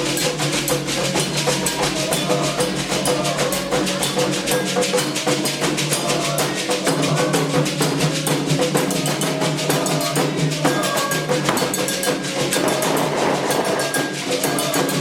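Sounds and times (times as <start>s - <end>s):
bell-like struck percussion: 0.0s - 15.0s
hand drums fast rhythm: 0.0s - 15.0s.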